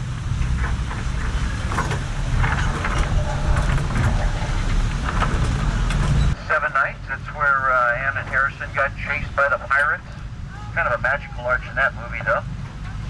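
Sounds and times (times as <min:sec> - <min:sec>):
boat engine rumbling: 0:00.0 - 0:13.0.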